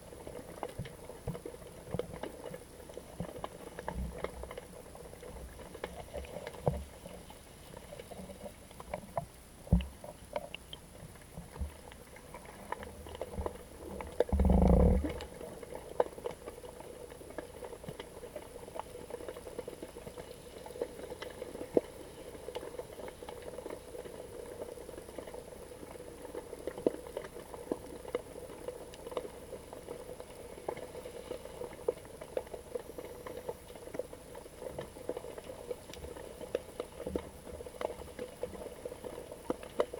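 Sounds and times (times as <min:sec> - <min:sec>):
underwater crackle of small clicks: 0:00.0 - 0:39.9.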